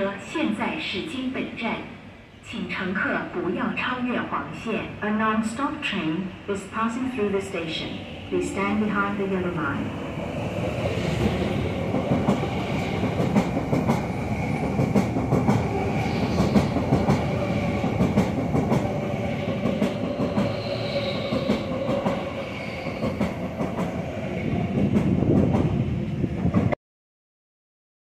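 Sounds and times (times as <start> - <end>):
train wheels rumbling on rail: 7.7 - 26.8.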